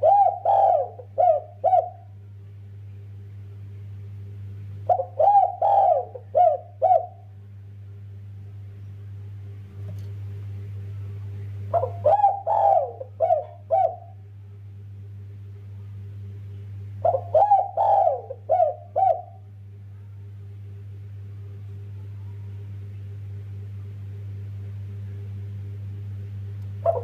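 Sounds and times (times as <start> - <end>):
dove cooing: 0.0 - 2.2, 4.8 - 7.3, 11.7 - 14.2, 17.0 - 19.5, 26.8 - 27.0
steady low hum: 0.0 - 27.0.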